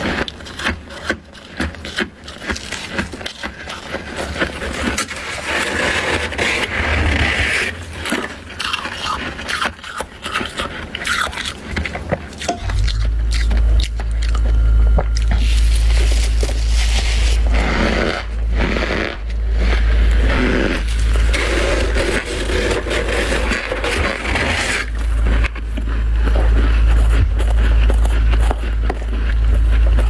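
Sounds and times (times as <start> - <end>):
frost scraping and crunching: 0.0 - 30.0
heavy low rumble: 12.0 - 30.0.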